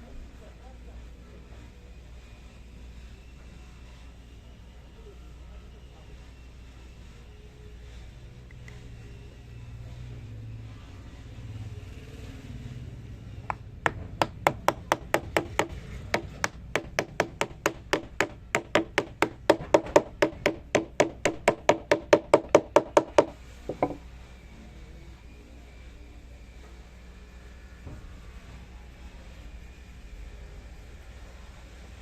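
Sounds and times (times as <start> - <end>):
hammer tapping: 13.5 - 24.0.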